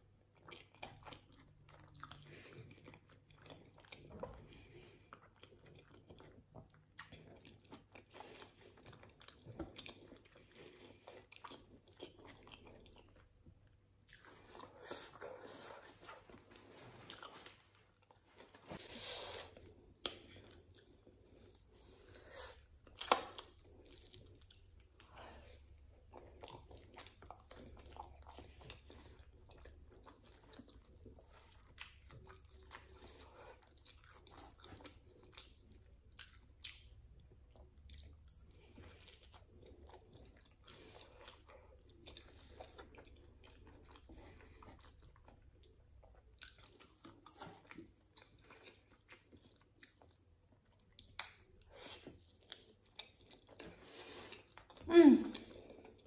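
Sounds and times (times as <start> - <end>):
wet chewing: 14.0 - 56.0.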